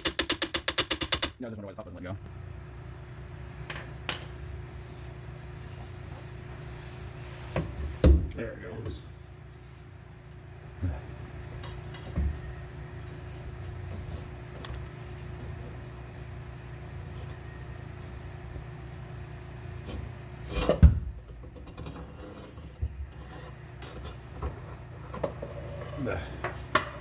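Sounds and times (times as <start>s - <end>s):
steady low hum: 1.3s - 27.0s
rubbing and scraping of parts: 21.4s - 27.0s.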